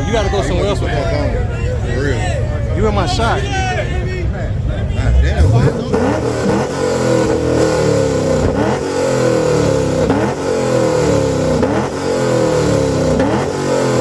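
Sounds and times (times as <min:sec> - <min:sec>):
car engine revving: 0:04.5 - 0:14.0.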